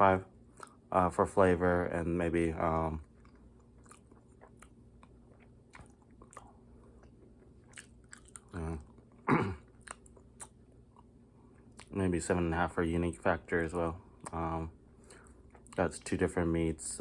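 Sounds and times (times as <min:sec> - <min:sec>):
person chewing crunchy food: 0:02.9 - 0:12.0.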